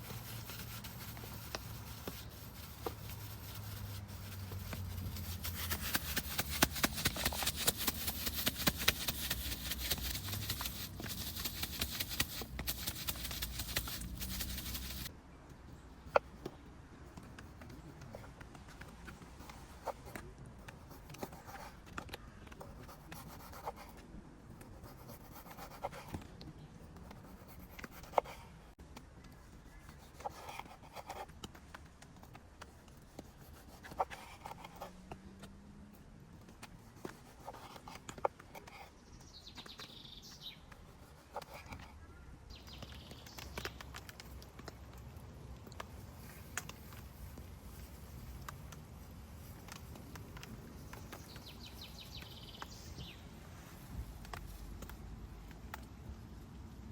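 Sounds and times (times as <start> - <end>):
soft rubbing and scraping: 0.0 - 15.1.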